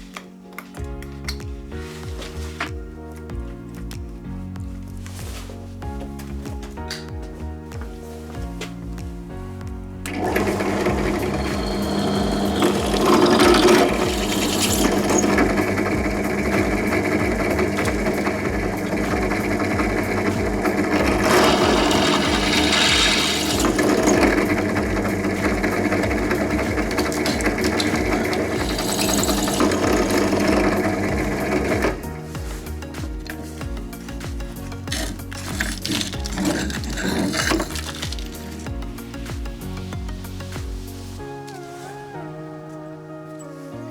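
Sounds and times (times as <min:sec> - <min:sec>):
power tool cutting steel: 0:10.1 - 0:32.1, 0:34.9 - 0:38.7.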